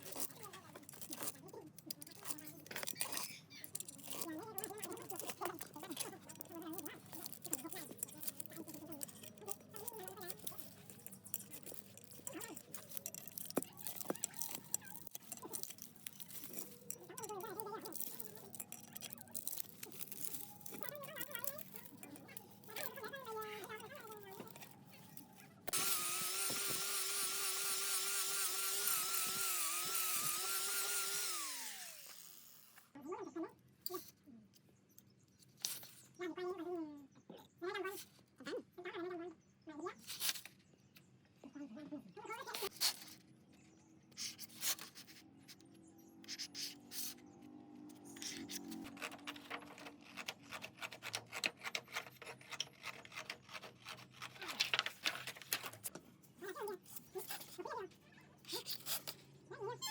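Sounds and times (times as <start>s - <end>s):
electric motor whining: 25.7s - 32.9s.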